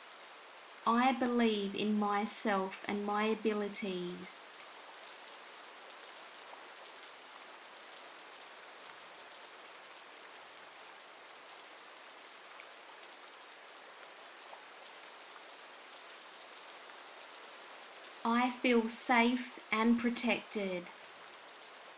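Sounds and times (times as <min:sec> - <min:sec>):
steady rain falling: 0:00.0 - 0:21.9.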